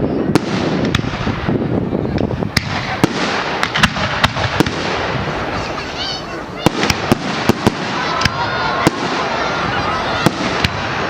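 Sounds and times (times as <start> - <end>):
fireworks barrage: 0.0 - 11.0.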